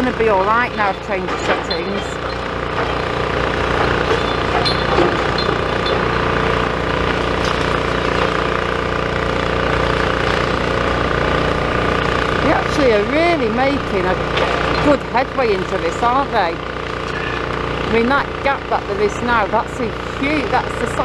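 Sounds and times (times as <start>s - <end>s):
excavator diesel engine running: 0.0s - 21.0s
clatter: 0.7s - 11.4s.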